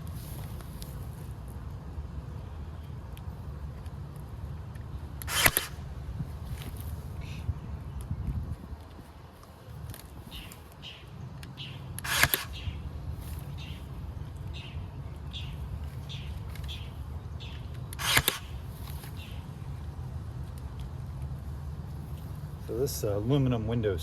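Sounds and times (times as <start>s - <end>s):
steady low hum: 0.0s - 24.0s
birds chirping: 10.1s - 20.0s.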